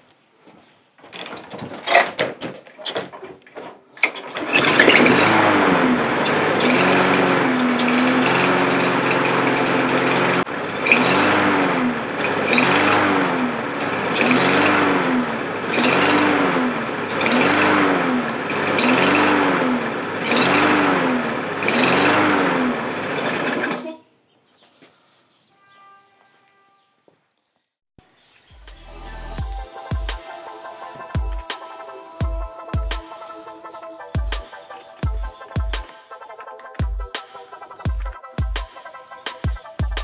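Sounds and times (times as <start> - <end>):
lawn mower engine surging: 4.0 - 23.9, 28.5 - 40.0.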